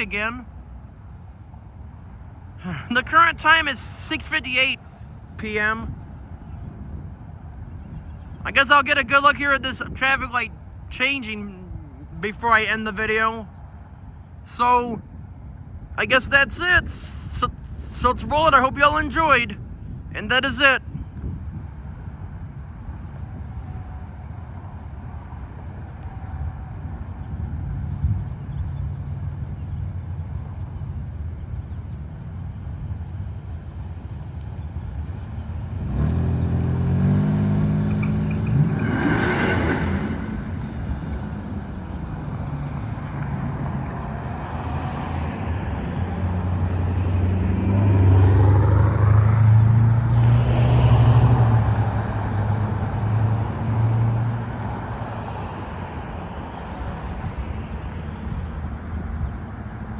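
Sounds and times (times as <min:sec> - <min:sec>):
vehicles accelerating past: 0:21.2 - 0:59.9.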